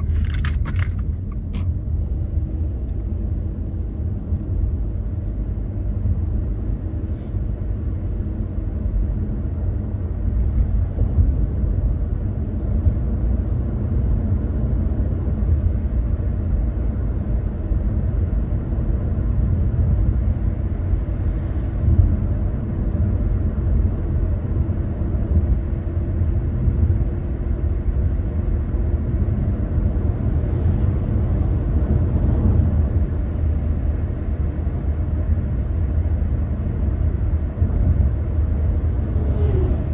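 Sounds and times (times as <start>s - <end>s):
car engine and tyres rumbling: 0.0s - 39.9s
faint held drone: 38.4s - 39.9s.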